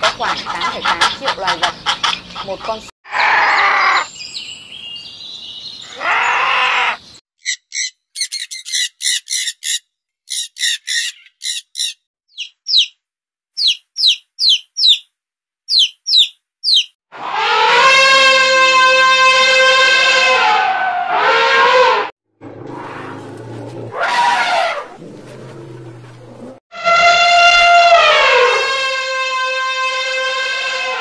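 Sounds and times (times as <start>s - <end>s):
bird chirping: 4.0s - 13.0s, 13.6s - 15.1s, 15.7s - 17.0s.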